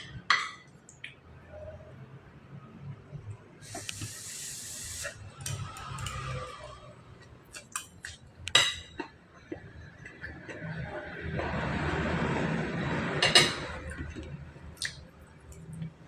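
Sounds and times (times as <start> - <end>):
short hiss: 3.6 - 5.2
dishes and utensils clinking: 7.5 - 9.2, 13.1 - 14.3.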